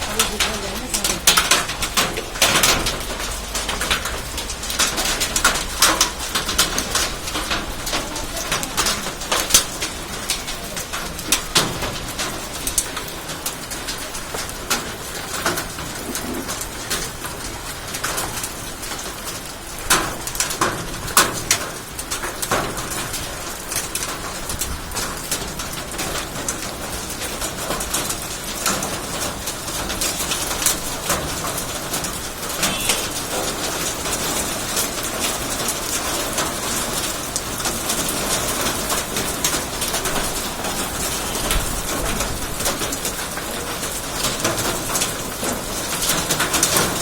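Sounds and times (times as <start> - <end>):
bird cooing: 0.0 - 2.7, 32.6 - 33.4
hailstones clacking: 0.0 - 47.0
heavy rain patter: 0.0 - 47.0.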